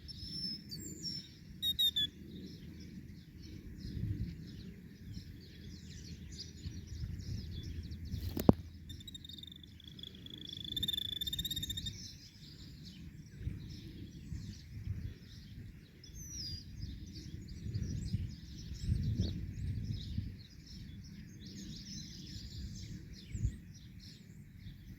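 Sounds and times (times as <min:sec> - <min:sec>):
low rumbling background noise: 0:00.0 - 0:24.9
small birds chirping: 0:00.0 - 0:24.9
buzzing bird trill: 0:01.6 - 0:02.2, 0:08.2 - 0:12.1.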